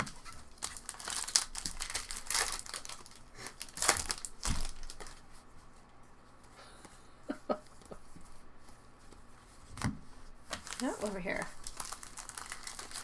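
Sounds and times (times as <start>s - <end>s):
foil wrapper crinkling and tearing: 0.0s - 5.2s, 10.5s - 13.0s.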